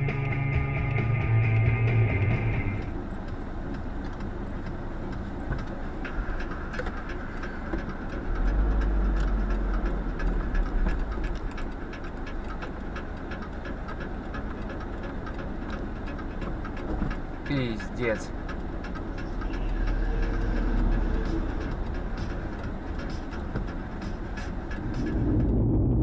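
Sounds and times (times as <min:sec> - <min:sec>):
vehicle rolling noise: 0:00.0 - 0:26.0
low rumble: 0:04.6 - 0:13.9, 0:18.4 - 0:26.0.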